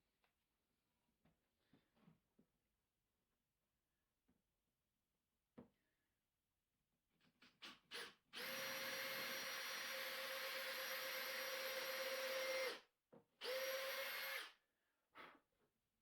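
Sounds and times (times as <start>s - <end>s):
power drill running: 7.9s - 12.8s, 13.4s - 14.5s.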